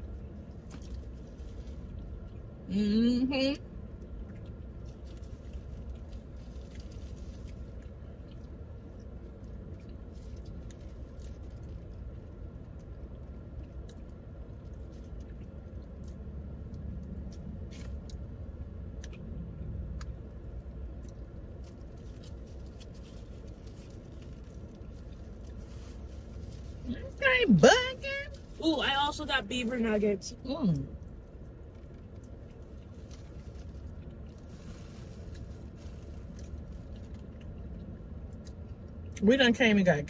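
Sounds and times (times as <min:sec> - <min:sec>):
low hum inside a car: 0:00.0 - 0:40.0
person chewing: 0:03.9 - 0:26.7
small clicks and crinkles: 0:19.9 - 0:27.0, 0:31.0 - 0:39.1.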